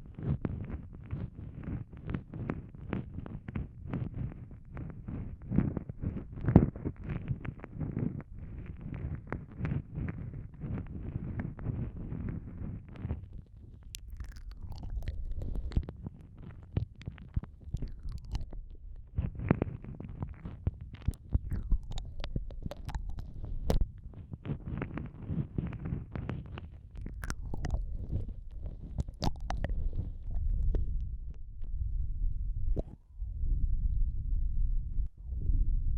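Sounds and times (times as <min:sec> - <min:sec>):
muffled microphone rumble: 0:00.0 - 0:35.9
wet mouth clicks and smacks: 0:13.7 - 0:24.9, 0:26.1 - 0:31.4.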